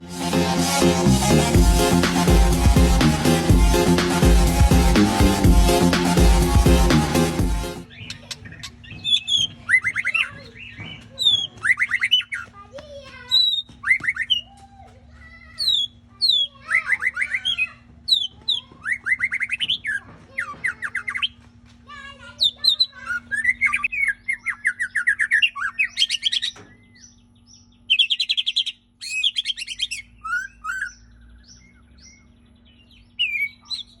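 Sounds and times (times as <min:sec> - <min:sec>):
bird singing whistled phrases: 0:22.4 - 0:26.9, 0:27.9 - 0:32.3, 0:32.9 - 0:34.0.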